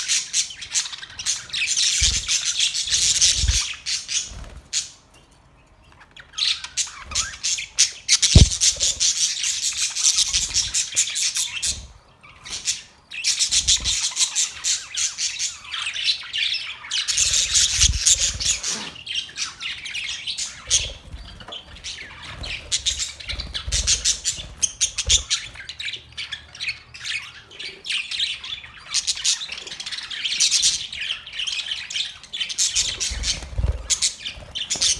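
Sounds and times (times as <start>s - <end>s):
parrots chattering and squawking: 0.0s - 5.1s, 5.9s - 34.9s
dull low thumps: 8.4s - 8.8s.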